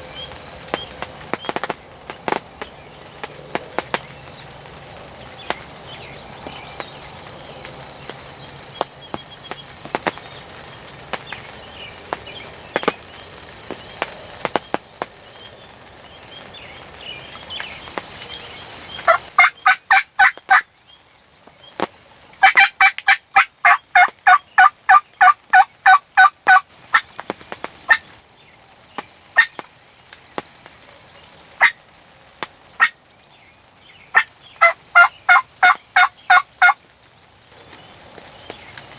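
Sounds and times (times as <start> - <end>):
turkey yelping: 19.1 - 20.6, 22.4 - 27.0, 34.1 - 36.8.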